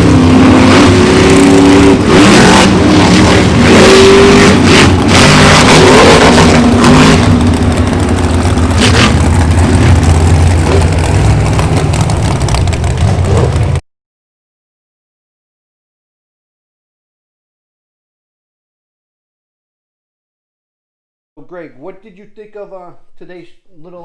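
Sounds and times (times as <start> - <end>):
vehicle engine revving: 0.0 - 13.8.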